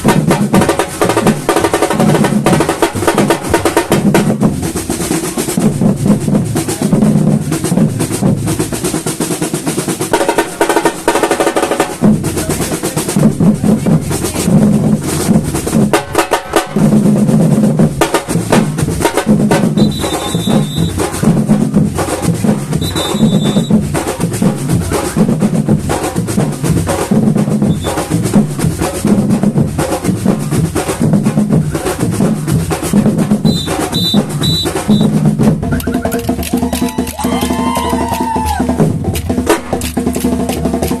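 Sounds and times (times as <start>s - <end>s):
bass drums beating: 0.0s - 41.0s
snare drums and percussion: 0.0s - 41.0s
high whistle blasts: 19.8s - 21.0s, 22.8s - 23.8s, 27.7s - 28.0s, 33.4s - 35.2s.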